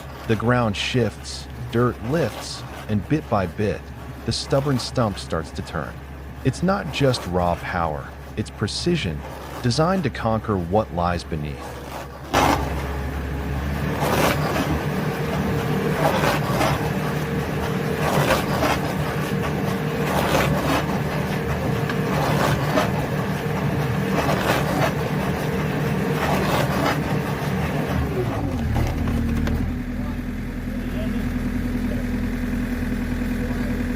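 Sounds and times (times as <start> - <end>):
scraping crunch of stump: 0.0 - 5.7, 11.0 - 29.8
heavy machine engine running: 0.0 - 33.9.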